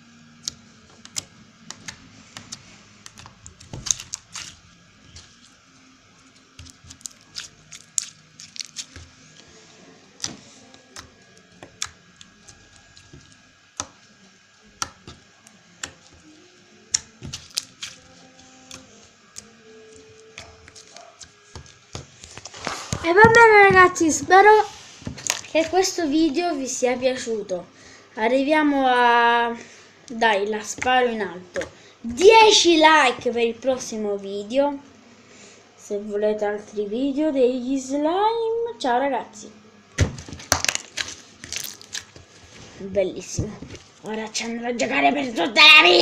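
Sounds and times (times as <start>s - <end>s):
slime squished by hand: 6.6s - 9.1s, 16.9s - 18.8s, 40.0s - 42.7s.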